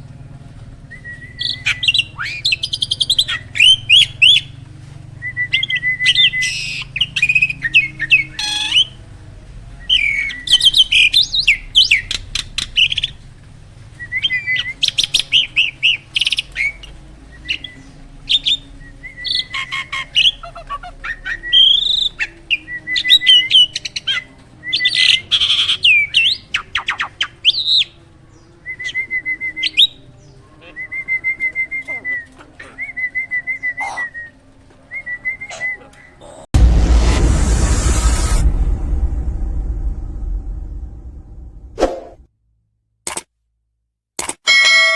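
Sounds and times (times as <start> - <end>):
starling singing: 1.1 - 4.6, 5.5 - 9.0, 9.8 - 13.2, 14.0 - 36.4.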